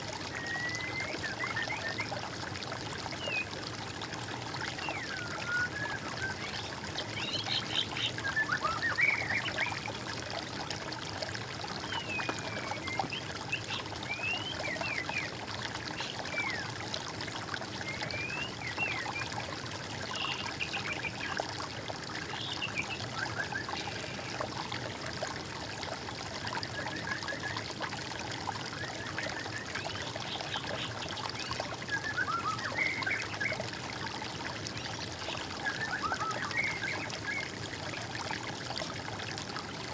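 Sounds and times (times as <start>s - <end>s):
water trickling: 0.0s - 39.9s
birds singing: 4.8s - 9.9s, 11.8s - 16.8s.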